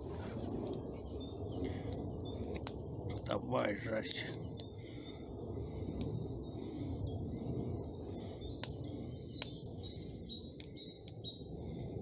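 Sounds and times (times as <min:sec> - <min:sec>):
forest birds chirping: 0:00.2 - 0:11.9.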